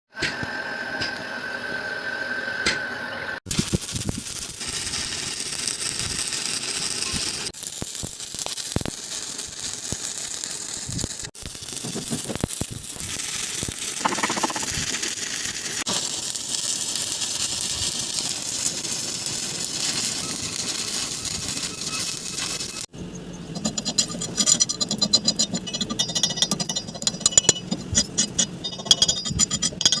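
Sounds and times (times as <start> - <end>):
arc welding crackling: 3.5 - 22.9.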